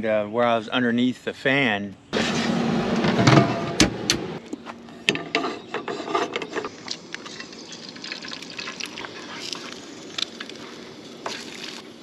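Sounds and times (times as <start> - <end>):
scraping and rubbing of objects: 4.6 - 8.0.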